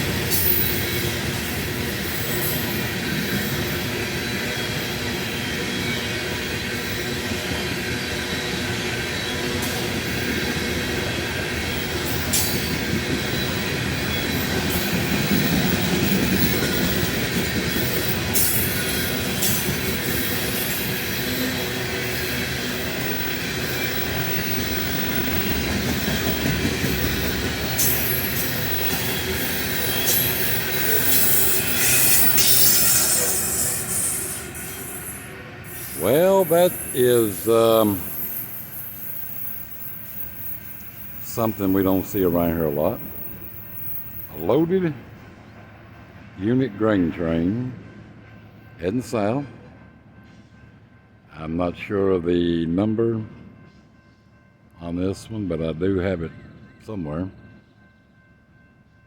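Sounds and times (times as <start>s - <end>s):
train wheels rumbling on rails: 0.0s - 55.3s
wheel squeal: 12.1s - 41.7s.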